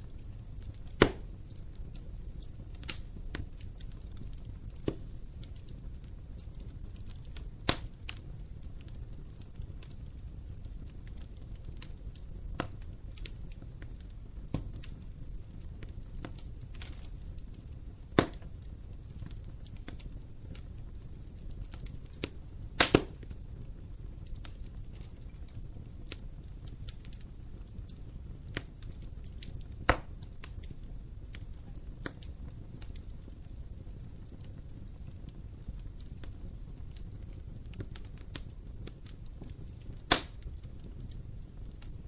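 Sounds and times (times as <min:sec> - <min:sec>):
fire flames rumbling: 0:00.0 - 0:42.0
wood fire crackling: 0:00.0 - 0:42.0
loud wood pops: 0:01.0 - 0:01.2, 0:18.2 - 0:18.4, 0:22.8 - 0:23.2, 0:29.9 - 0:30.1, 0:40.1 - 0:40.4.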